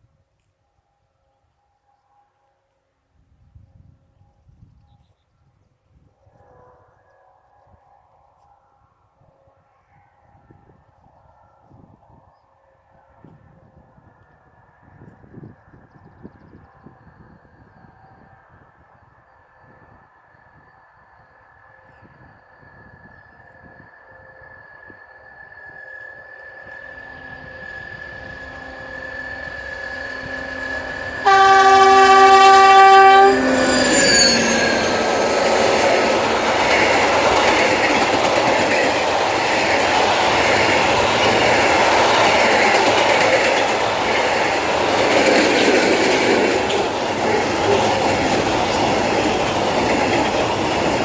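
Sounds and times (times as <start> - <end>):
train horn: 6.2 - 8.7, 24.2 - 38.1
diesel locomotive approaching: 12.8 - 51.0
wheels rumbling on rails: 25.2 - 51.0.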